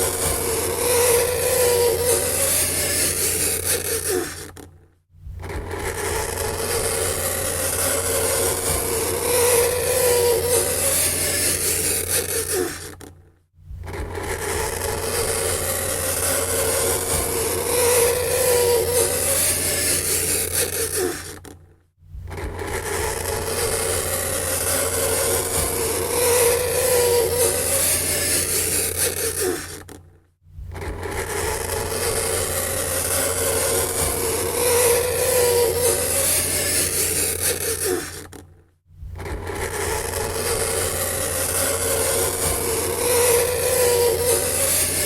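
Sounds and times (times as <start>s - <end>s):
fingernails scraping chalkboard: 13.9s - 21.5s, 22.4s - 30.0s, 30.8s - 38.4s.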